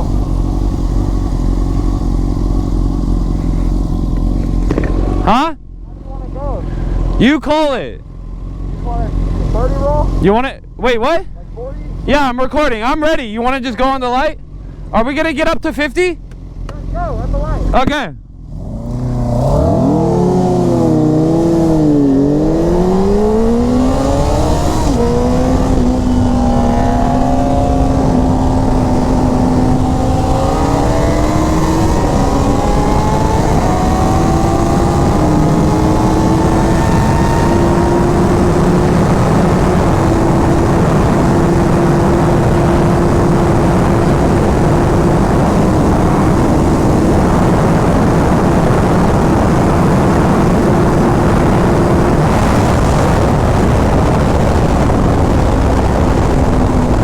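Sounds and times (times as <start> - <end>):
rushing wind noise: 0.0 - 5.4, 18.5 - 57.0
motorcycle engine accelerating: 0.0 - 57.0.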